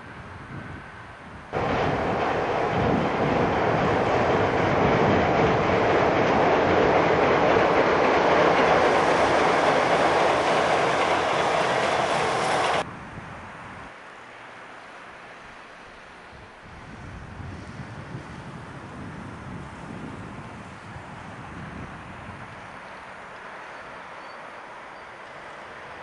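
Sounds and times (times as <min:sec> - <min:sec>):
train wheels rumbling on rails: 0:01.5 - 0:12.9.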